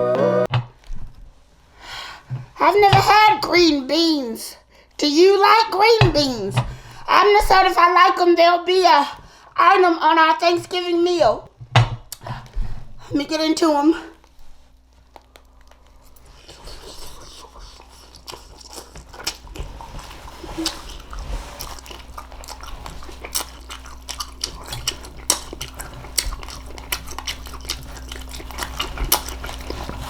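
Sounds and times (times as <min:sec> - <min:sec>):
steady low hum: 0:00.0 - 0:30.0
person chewing crunchy food: 0:14.3 - 0:30.0.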